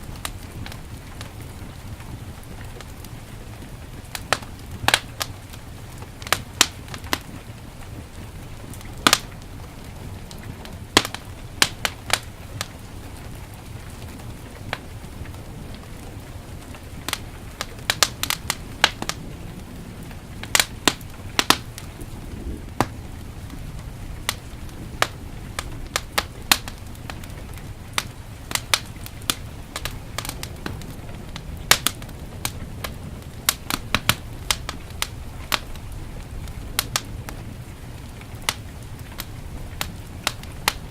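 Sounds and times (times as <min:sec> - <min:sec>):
low fire rumble: 0:00.0 - 0:40.9
wood fire crackling and popping: 0:00.0 - 0:40.9.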